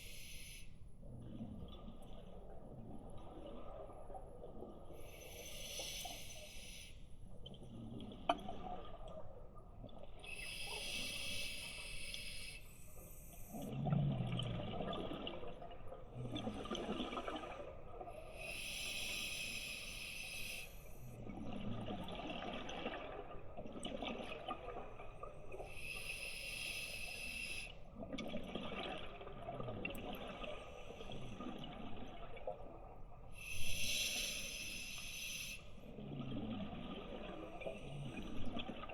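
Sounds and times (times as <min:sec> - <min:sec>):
exhaled bubbles burbling: 0:01.1 - 0:05.1, 0:07.6 - 0:10.2, 0:13.5 - 0:18.3, 0:21.1 - 0:25.7, 0:28.0 - 0:33.1, 0:35.8 - 0:38.9.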